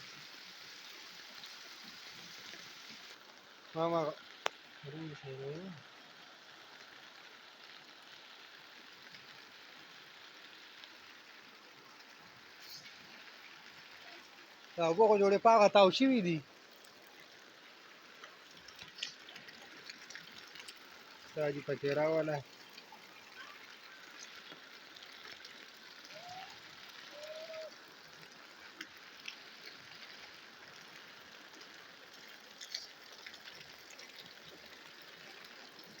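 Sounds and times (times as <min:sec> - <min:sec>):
rain falling: 0:00.0 - 0:36.0
sharp taps of raindrops: 0:04.4 - 0:04.7, 0:18.2 - 0:30.1, 0:30.8 - 0:36.0.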